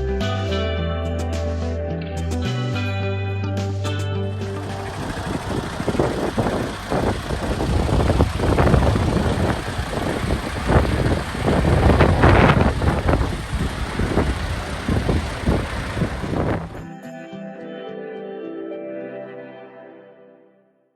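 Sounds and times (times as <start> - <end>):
diesel truck engine running: 4.4 - 16.8.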